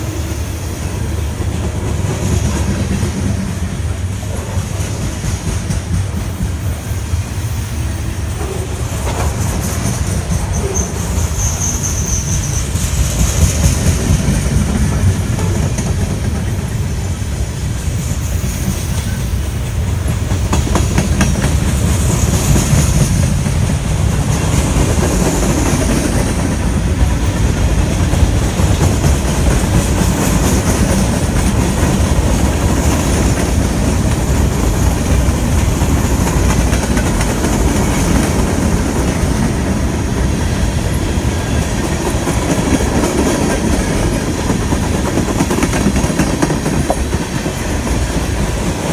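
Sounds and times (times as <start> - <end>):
train wheels clacking over rail joints: 0.0 - 7.5, 8.3 - 48.9
low train rumble: 0.0 - 48.9
high wheel squeal: 10.4 - 13.1.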